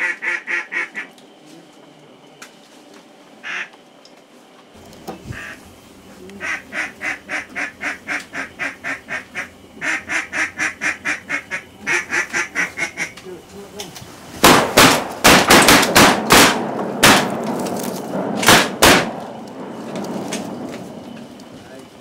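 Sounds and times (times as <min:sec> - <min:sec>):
duck quacking: 0:00.0 - 0:01.1, 0:03.4 - 0:03.7, 0:05.3 - 0:05.6, 0:06.4 - 0:13.2.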